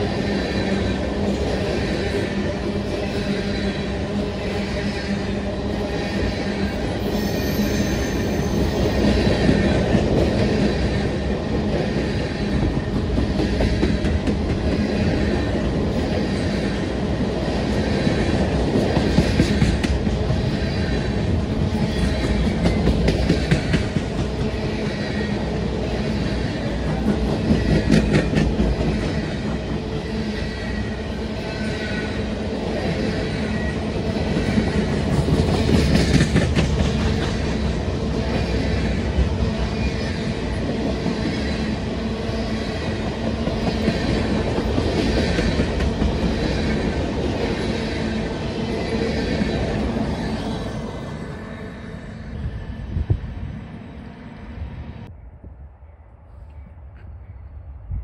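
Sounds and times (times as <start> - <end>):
freight train wheels rumbling: 0.0 - 55.2
high wheel squeal: 5.8 - 9.5.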